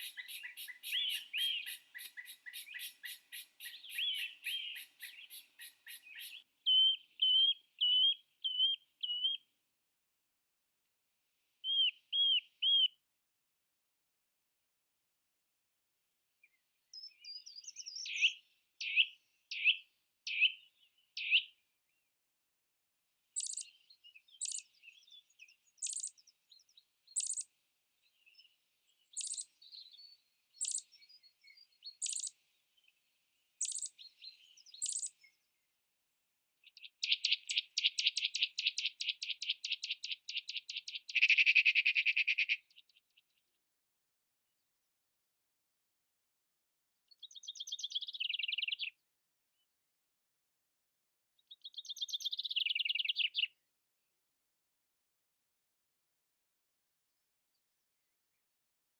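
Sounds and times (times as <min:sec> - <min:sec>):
birds chirping and singing: 0:00.0 - 0:09.4, 0:28.2 - 0:33.0, 0:33.6 - 0:35.4, 0:36.7 - 0:42.5.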